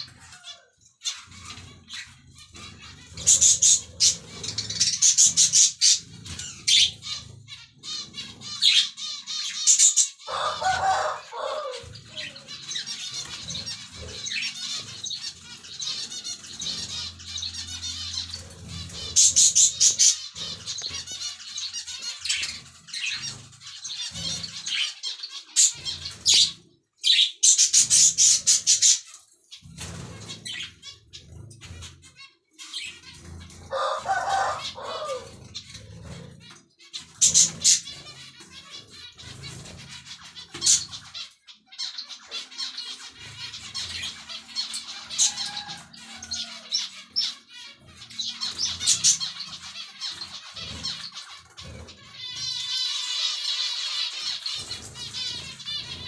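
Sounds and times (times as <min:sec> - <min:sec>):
wing flutters: 0:00.0 - 0:24.9, 0:33.0 - 0:41.2, 0:42.3 - 0:56.0
finches chirping and twittering: 0:00.0 - 0:56.0
harsh bird call: 0:08.1 - 0:23.4, 0:33.7 - 0:35.4, 0:42.2 - 0:51.1.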